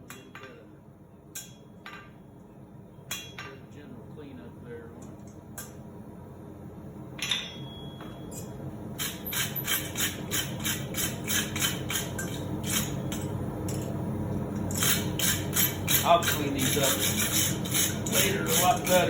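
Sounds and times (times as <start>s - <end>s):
steady low hum: 0.0s - 19.0s
hammer striking steel on anvil: 7.2s - 8.5s.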